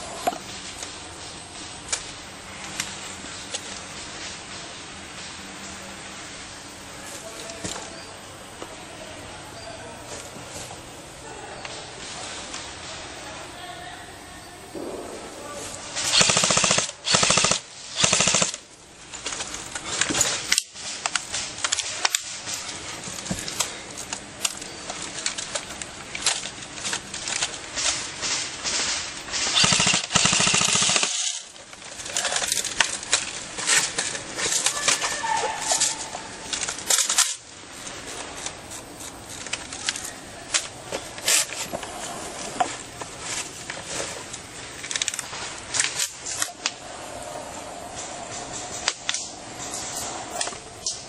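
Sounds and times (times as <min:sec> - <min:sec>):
airsoft rifles firing bursts: 0:14.8 - 0:18.7, 0:27.8 - 0:31.5
single shots and clicks: 0:14.8 - 0:18.7, 0:28.3 - 0:31.5.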